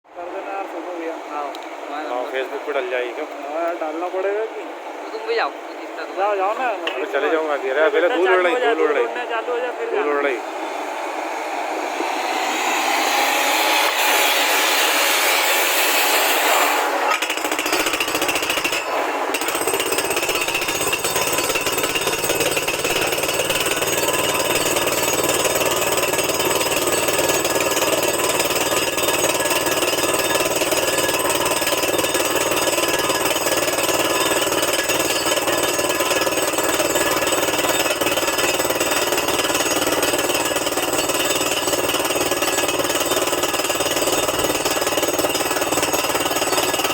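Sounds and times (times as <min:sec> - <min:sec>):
rushing air: 0:10.4 - 0:13.8
drill hammering rattle: 0:11.9 - 0:46.9.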